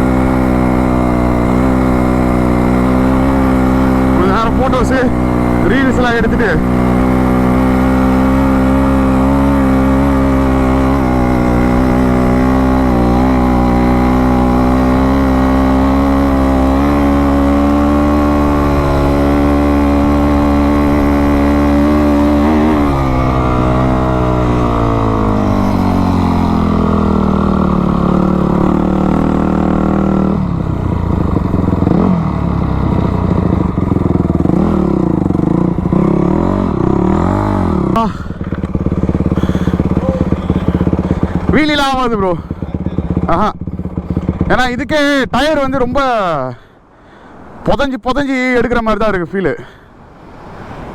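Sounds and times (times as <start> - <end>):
dirt bike engine revving: 0.0 - 46.7.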